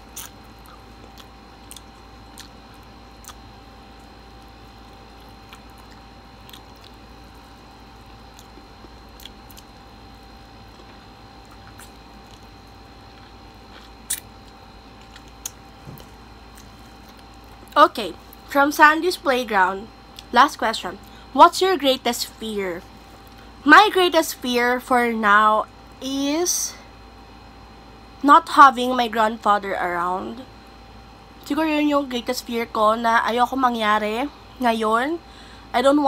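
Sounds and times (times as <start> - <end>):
person chewing: 0.0 - 18.4
faint steady hum: 0.0 - 36.0.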